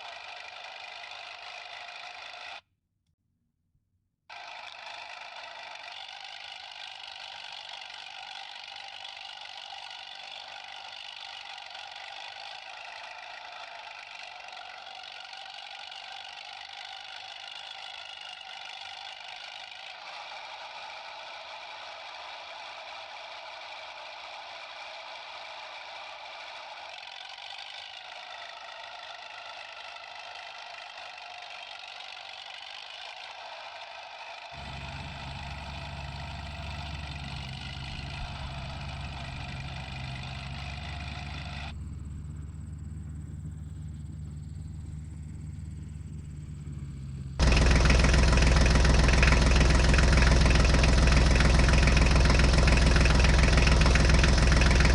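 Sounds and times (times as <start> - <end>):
thin motor running: 34.6 - 54.9.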